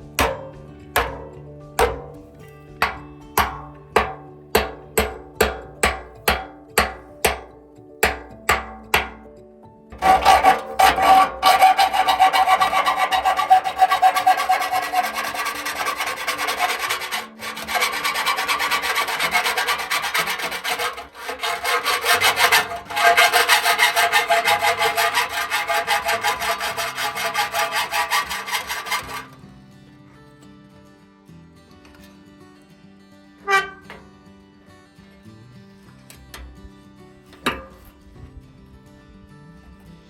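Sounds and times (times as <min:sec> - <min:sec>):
hand tool rasping: 0:00.0 - 0:09.3, 0:10.0 - 0:29.4.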